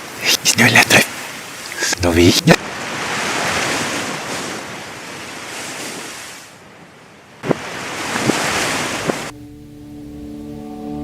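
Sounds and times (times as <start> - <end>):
rushing noise like surf: 0.0 - 6.6, 7.4 - 10.5.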